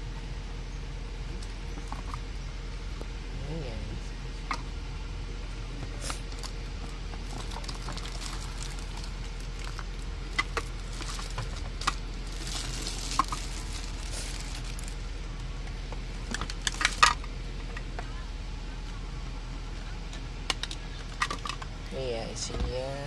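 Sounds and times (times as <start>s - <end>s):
steady low hum: 0.0s - 23.0s
packaging rustling: 6.1s - 15.1s, 16.3s - 17.2s.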